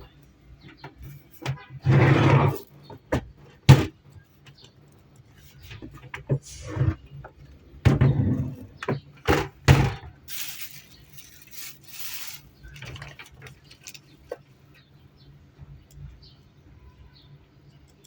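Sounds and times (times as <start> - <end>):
knocks and thuds: 7.8 - 10.2
rustling: 10.3 - 14.4.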